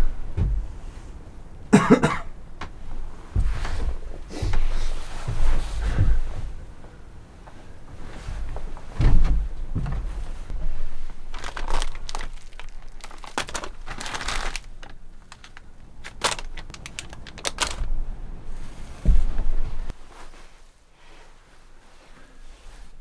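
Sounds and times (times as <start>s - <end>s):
low thumps: 0.0s - 7.2s
crinkling handling noise: 0.0s - 21.9s.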